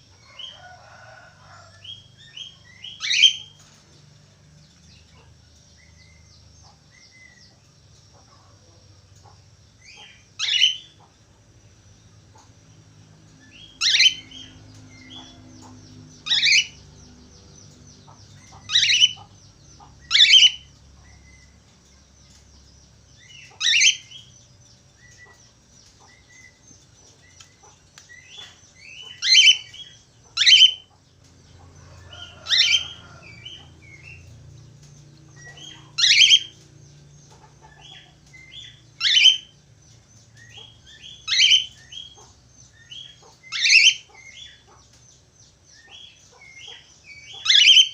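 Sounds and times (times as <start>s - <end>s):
budgerigar calls: 18.4s - 20.6s, 23.4s - 24.2s, 27.6s - 30.8s, 35.4s - 36.5s, 37.6s - 39.5s, 40.5s - 42.3s, 42.9s - 44.6s, 45.9s - 47.9s.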